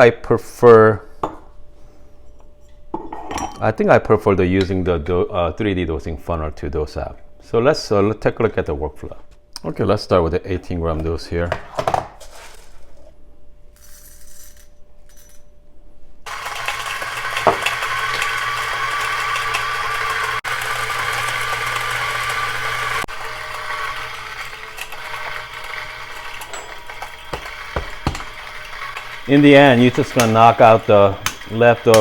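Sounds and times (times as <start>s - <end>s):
electric coffee grinder whirring: 16.3s - 32.0s.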